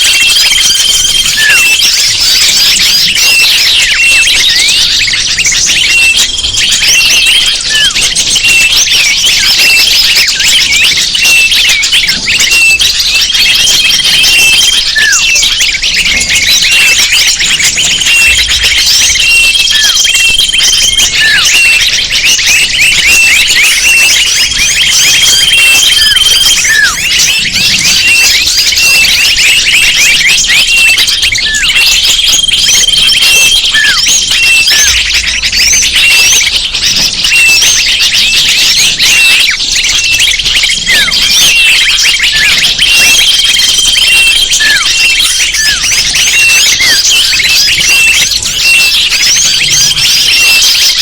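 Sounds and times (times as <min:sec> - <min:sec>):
high steady bird note: 0:00.0 - 0:50.6
short falling bird calls: 0:00.0 - 0:51.0
small birds chirping: 0:00.0 - 0:51.0.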